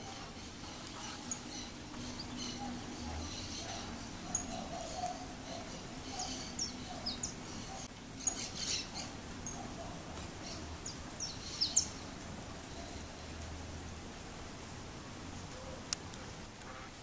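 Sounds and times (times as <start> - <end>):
small birds chirping: 0.0 - 13.5.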